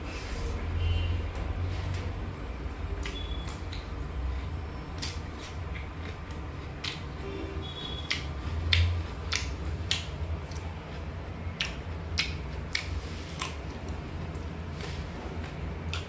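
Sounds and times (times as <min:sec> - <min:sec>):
wet mouth clicks and smacks: 0:03.0 - 0:04.0, 0:05.0 - 0:07.1, 0:07.7 - 0:10.7, 0:11.4 - 0:14.0
person chewing food: 0:03.0 - 0:16.0.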